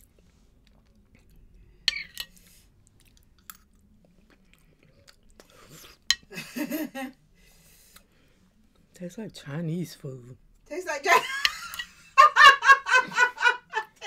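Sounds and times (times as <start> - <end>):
quiet chewing: 0.0 - 6.2.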